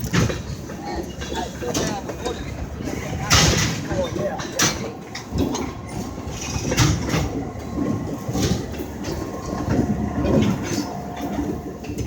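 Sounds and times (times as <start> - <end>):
freight train rumbling: 0.0 - 12.0
train wheels clacking: 0.0 - 12.0.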